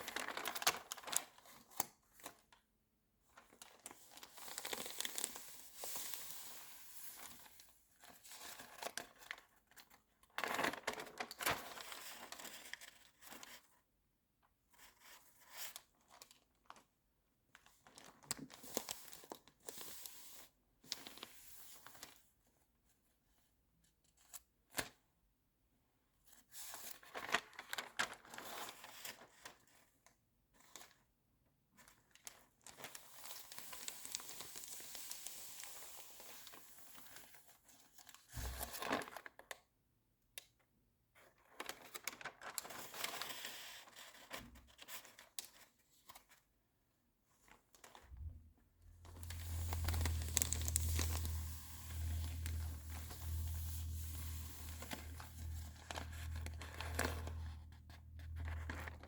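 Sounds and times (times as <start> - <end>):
magazine pages rustling: 38.4 - 39.1, 49.1 - 59.0
steady low hum: 48.2 - 59.0.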